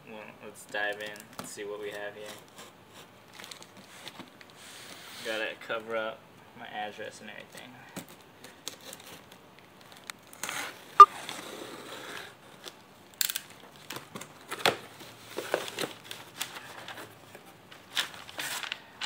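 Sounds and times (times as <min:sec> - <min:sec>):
cardboard package rustling and scraping: 0:13.8 - 0:19.0.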